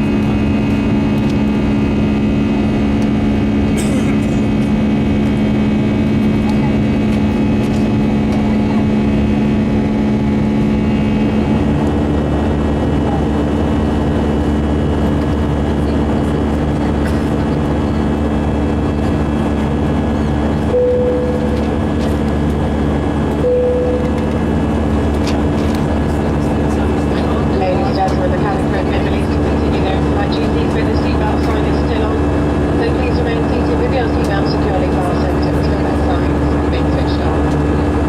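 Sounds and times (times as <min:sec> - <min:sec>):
aircraft cabin engine hum: 0:00.0 - 0:38.0
short beeps: 0:20.7 - 0:21.8, 0:23.4 - 0:24.3.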